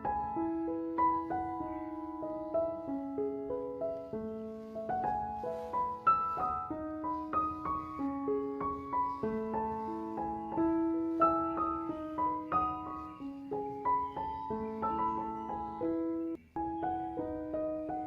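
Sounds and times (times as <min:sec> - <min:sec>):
piano-like keyboard melody: 0:00.0 - 0:18.0.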